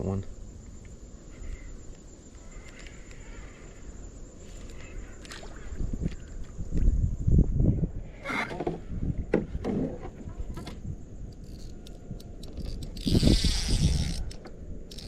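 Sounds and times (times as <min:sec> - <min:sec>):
fishing reel drag buzzing: 0:11.4 - 0:15.0.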